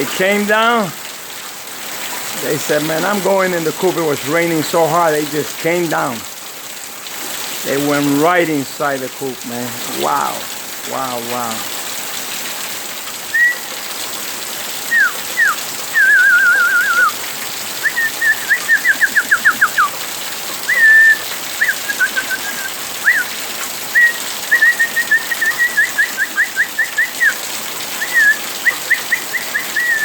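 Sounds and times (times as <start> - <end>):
pouring rain hiss: 0.0 - 30.0
clear whistling: 13.3 - 13.7, 14.9 - 17.2, 17.8 - 19.9, 20.7 - 23.3, 24.0 - 27.4, 28.0 - 30.0.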